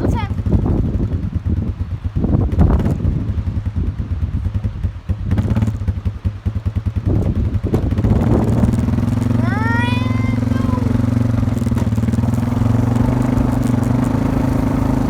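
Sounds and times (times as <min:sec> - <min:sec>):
quad engine running: 0:00.0 - 0:15.0.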